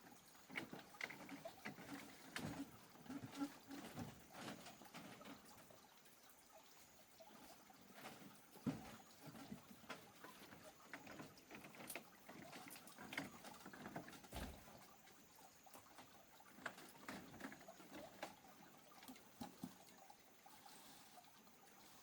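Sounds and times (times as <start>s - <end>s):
light water sounds: 0.0s - 22.0s
dull thump: 14.3s - 14.7s
faint knocks and clicks: 15.7s - 20.0s.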